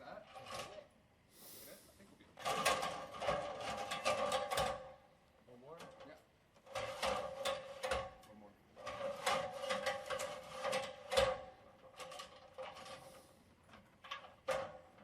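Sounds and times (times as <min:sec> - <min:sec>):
metal ladder clanking: 0:02.4 - 0:04.9, 0:05.8 - 0:15.0.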